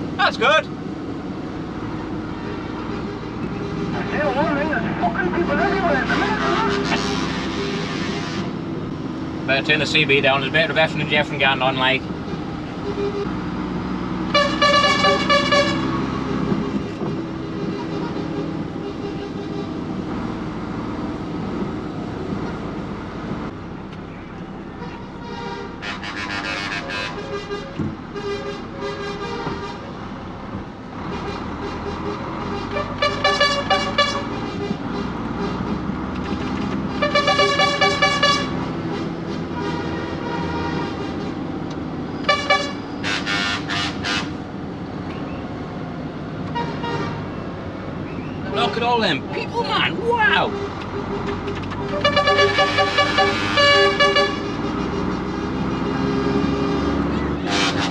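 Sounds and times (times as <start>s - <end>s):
lorry diesel engine droning: 0.0s - 57.9s
truck air horns tooting: 2.4s - 8.8s, 12.3s - 13.4s, 14.3s - 20.2s, 24.6s - 30.0s, 31.0s - 44.4s, 46.5s - 47.4s, 50.4s - 57.9s.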